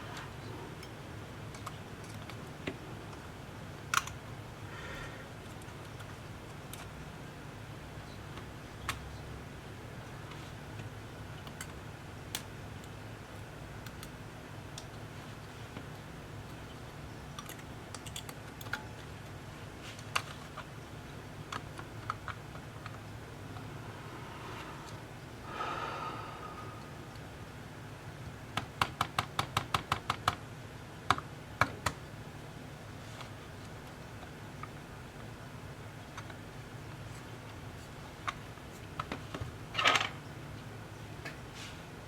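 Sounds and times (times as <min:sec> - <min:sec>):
steady low hum: 0:00.0 - 0:28.6
small sharp clicks and taps: 0:28.6 - 0:30.4.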